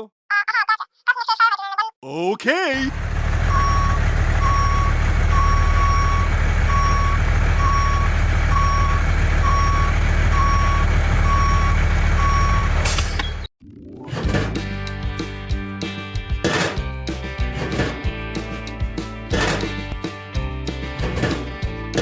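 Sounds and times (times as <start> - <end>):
truck engine rumble: 2.7 - 13.5
truck reversing alarm beeping: 3.2 - 13.5.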